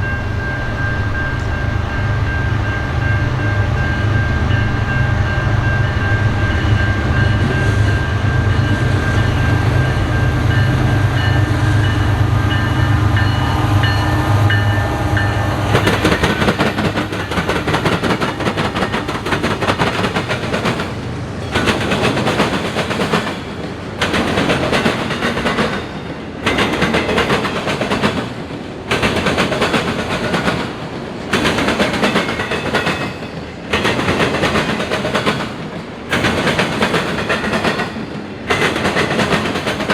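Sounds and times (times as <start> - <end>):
diesel locomotive engine drone: 0.0 - 26.4
train wheels clattering on rails: 0.0 - 39.9.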